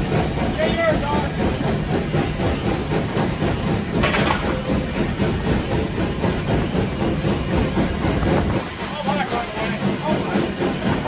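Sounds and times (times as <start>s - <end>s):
steam locomotive rumble and clatter: 0.0s - 11.0s.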